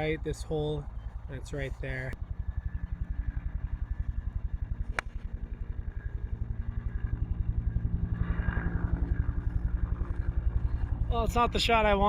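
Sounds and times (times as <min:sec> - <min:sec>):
golf club striking ball: 0:04.8 - 0:05.3.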